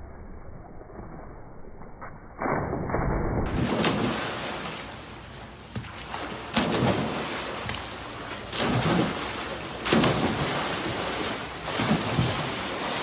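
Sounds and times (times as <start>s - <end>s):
noisy wash: 3.6s - 13.0s
water splashing: 3.6s - 13.0s.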